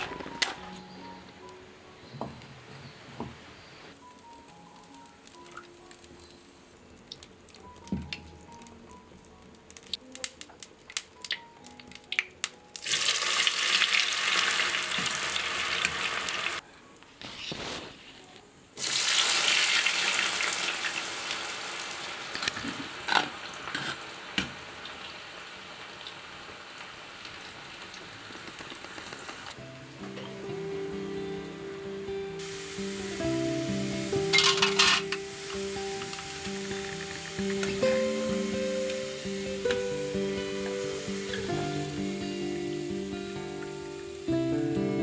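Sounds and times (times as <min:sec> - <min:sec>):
loud frying sizzle: 0:03.9 - 0:16.6, 0:18.8 - 0:45.0
oil popping and crackling: 0:04.2 - 0:16.6, 0:18.8 - 0:29.6, 0:34.2 - 0:40.4.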